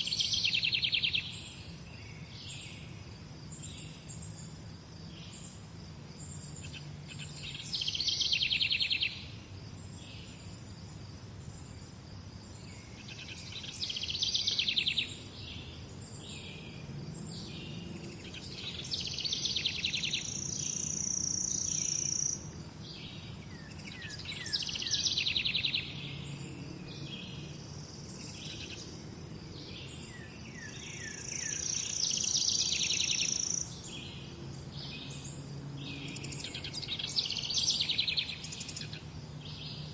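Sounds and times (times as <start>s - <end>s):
songbird trilling: 0.0s - 1.6s, 6.4s - 9.3s, 12.9s - 16.6s, 17.4s - 29.0s, 29.7s - 39.8s
bird chirps: 0.0s - 2.9s, 6.2s - 10.6s, 12.5s - 39.9s.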